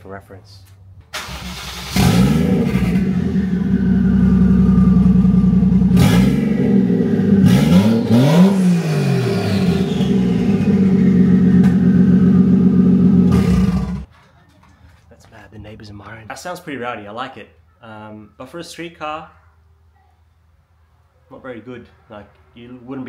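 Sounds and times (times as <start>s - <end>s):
loud car engine idling and revving: 1.5s - 14.1s.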